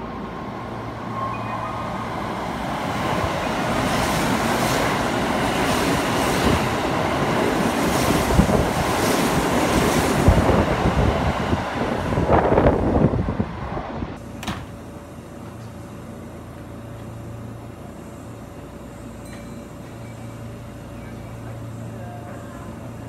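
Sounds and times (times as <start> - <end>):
train wheels rumbling on rails: 2.7 - 14.5.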